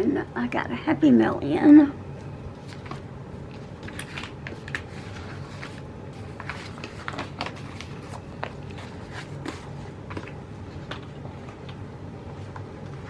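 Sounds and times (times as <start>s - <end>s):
stickers peeling and rustling: 2.5s - 11.8s.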